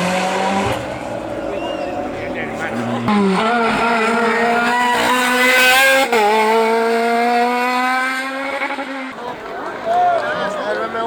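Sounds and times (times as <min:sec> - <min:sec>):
car engine revving hard: 0:00.0 - 0:09.2.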